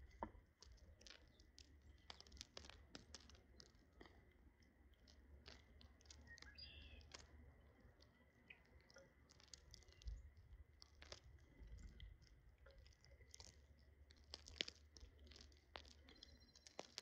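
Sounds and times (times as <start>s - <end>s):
birds cracking seeds: 0.0s - 17.0s
high bird chirp: 6.3s - 7.1s.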